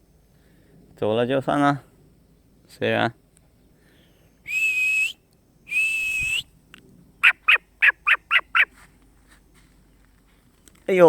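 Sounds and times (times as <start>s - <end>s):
high whistled bird calls: 4.3s - 6.5s.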